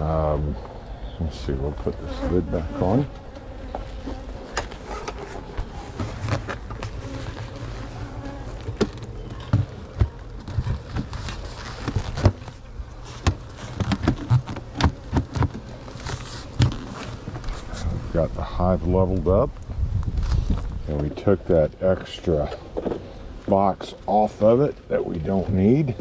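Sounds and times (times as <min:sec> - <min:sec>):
bees buzzing: 0:00.0 - 0:17.5.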